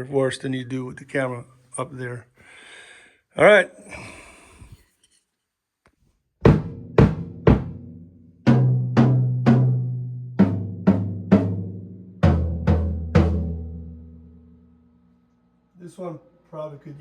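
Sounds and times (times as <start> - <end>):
drum kit drums struck: 6.4 - 13.9.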